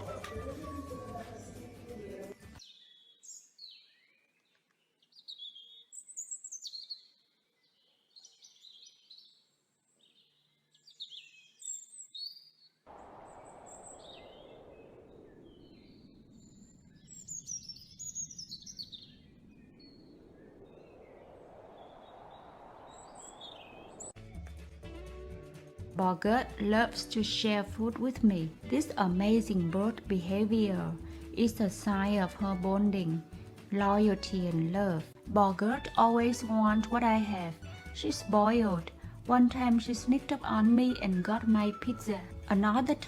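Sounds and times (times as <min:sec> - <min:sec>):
steady rushing noise: 0:12.9 - 0:16.8, 0:19.2 - 0:24.2.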